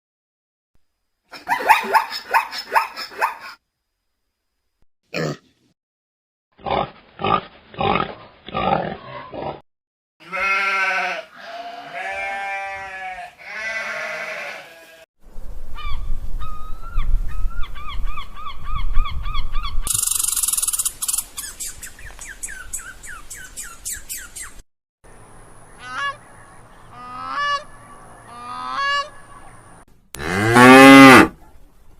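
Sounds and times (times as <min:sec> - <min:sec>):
animal grunts: 0:05.1 - 0:05.5
animal chirping calls: 0:15.8 - 0:24.6.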